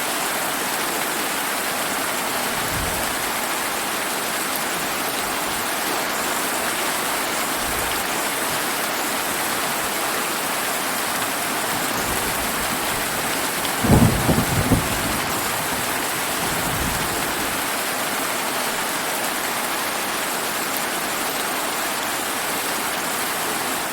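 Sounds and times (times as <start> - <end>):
heavy rain falling: 0.0 - 23.9
thunder rumbling: 2.4 - 3.6, 11.7 - 17.7.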